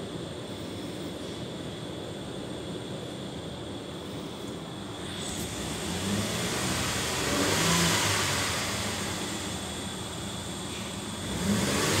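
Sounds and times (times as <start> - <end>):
car engine revving: 5.0 - 12.0.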